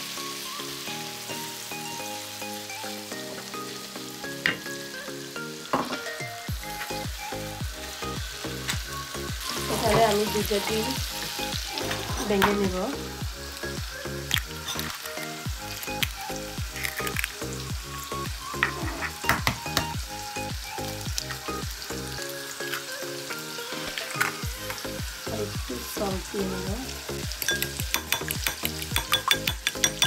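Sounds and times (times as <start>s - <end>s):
background music with steady beat: 0.0s - 30.0s
chicken sizzling in a frying pan: 0.0s - 30.0s
eggs cracking: 14.2s - 17.4s, 27.4s - 30.0s
fork clinking against glass: 27.4s - 30.0s.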